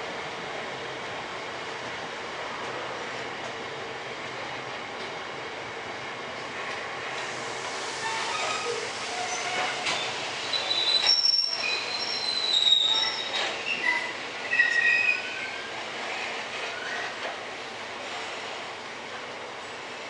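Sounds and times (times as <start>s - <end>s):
train rolling rumble: 0.0s - 20.0s
train wheels squealing on rails: 7.1s - 17.4s.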